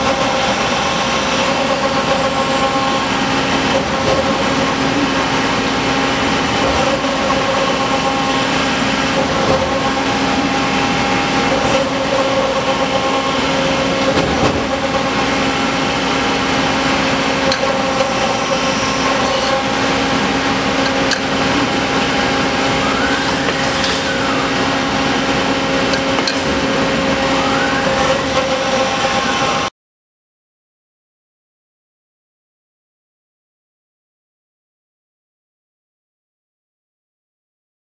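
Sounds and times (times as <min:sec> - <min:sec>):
machine axis whine: 0:00.0 - 0:29.7
machine hum with constant tones: 0:00.0 - 0:29.7.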